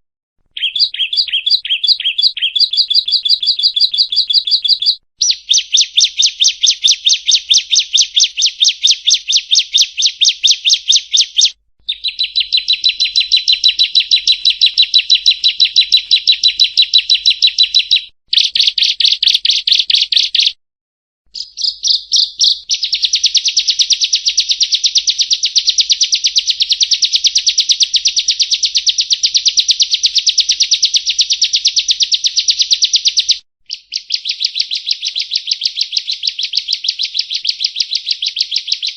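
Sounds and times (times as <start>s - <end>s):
bird singing rapid high chipping: 0.5s - 20.6s, 21.3s - 38.9s.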